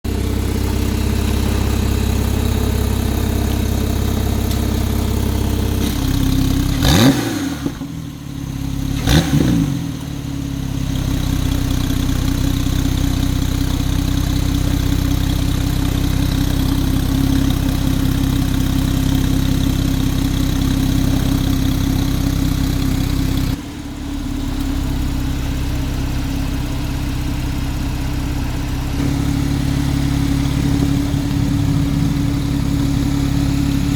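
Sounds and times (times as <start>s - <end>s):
engine revving: 0.0s - 10.1s, 28.2s - 33.9s
car engine idling: 0.0s - 33.9s.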